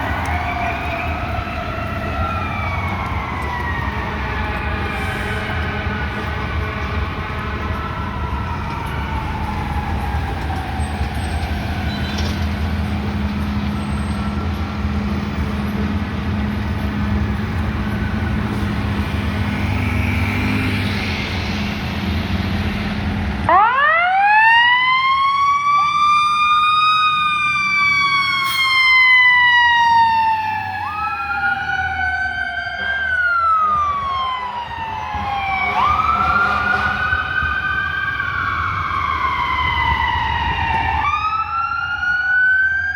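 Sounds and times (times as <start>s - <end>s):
loud siren winding up: 0.0s - 5.8s, 7.6s - 12.6s, 23.4s - 42.9s
traffic and engines rumbling: 0.0s - 42.9s
wailing siren tones: 0.0s - 42.9s.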